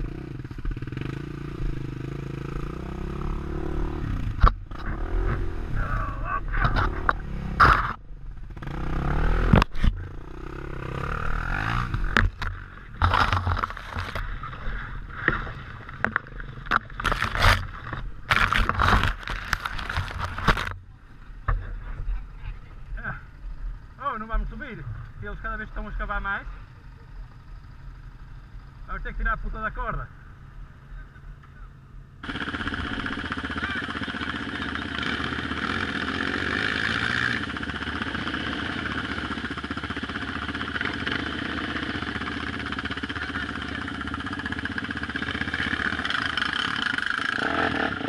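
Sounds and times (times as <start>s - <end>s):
motorcycle engines revving: 0.0s - 48.0s
wheels spinning in loose dirt: 2.6s - 29.0s, 32.2s - 48.0s
voices shouting: 5.7s - 6.7s
sharp knocks and clatter: 11.7s - 14.3s, 15.2s - 20.8s.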